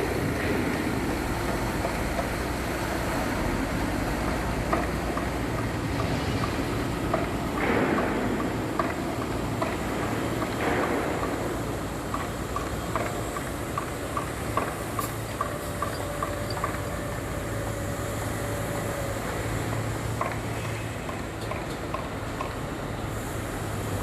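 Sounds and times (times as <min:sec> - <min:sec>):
diesel truck engine running: 0:00.0 - 0:07.6.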